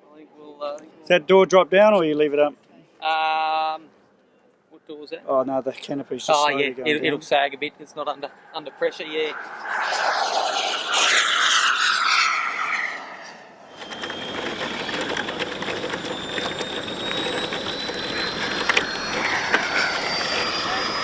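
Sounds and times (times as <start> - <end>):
jet turbine whine: 7.7 - 21.0
loud rushing noise: 8.6 - 14.2.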